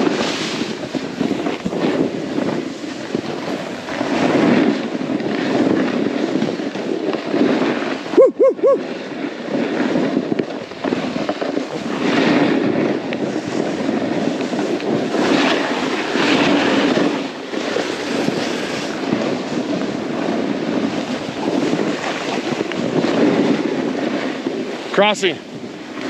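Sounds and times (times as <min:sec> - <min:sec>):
snowboard scraping over snow: 0:00.0 - 0:26.0.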